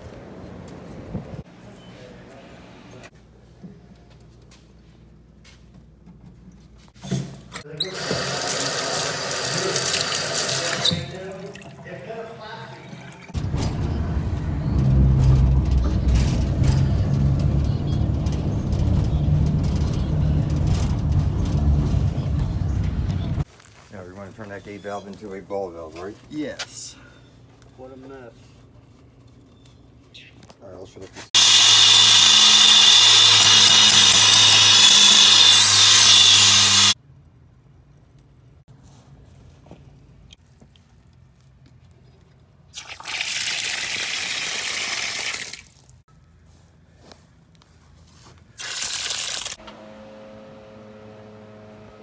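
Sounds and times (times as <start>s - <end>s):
electric power tool running: 13.4s - 23.4s, 31.4s - 37.0s
low motor rumble: 13.4s - 23.4s.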